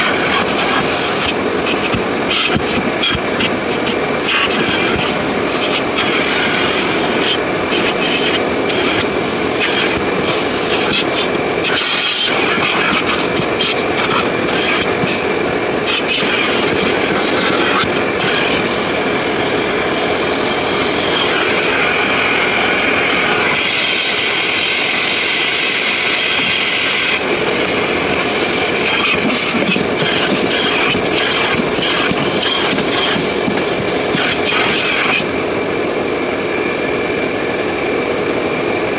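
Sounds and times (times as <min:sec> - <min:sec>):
vacuum suction hiss: 0:00.0 - 0:37.4.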